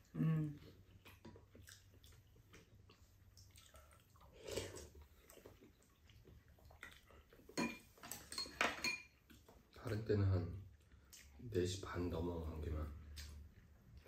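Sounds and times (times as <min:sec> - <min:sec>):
chewing and mouth clicks: 0:00.6 - 0:07.6, 0:09.2 - 0:11.5, 0:13.0 - 0:14.0.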